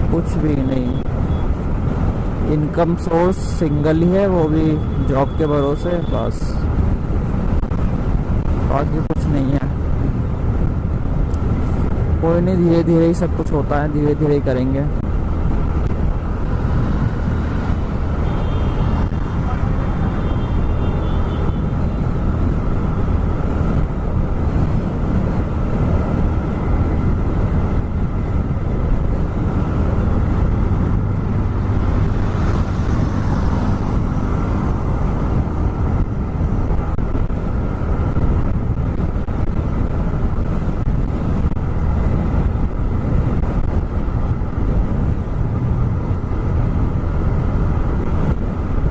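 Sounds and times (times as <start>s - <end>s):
wind noise on microphone: 0.0s - 48.9s
motorcycle engine cruising: 15.0s - 48.9s.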